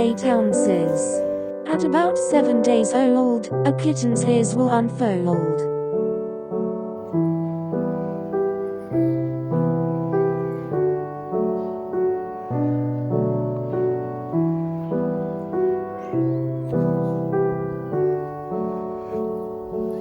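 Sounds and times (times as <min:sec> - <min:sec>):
soft piano music: 0:00.0 - 0:20.0.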